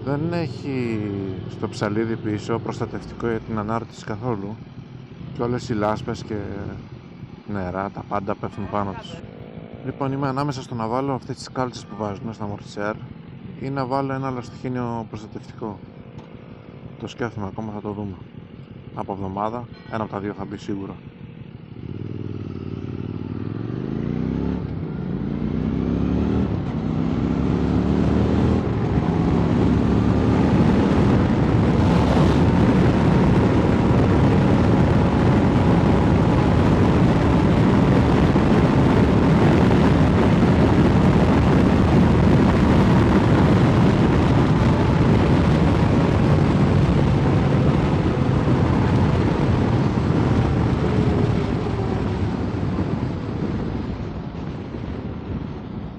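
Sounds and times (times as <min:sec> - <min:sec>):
motorcycle accelerating: 0:00.0 - 0:20.0, 0:20.7 - 0:55.9
wind noise on microphone: 0:21.8 - 0:55.9.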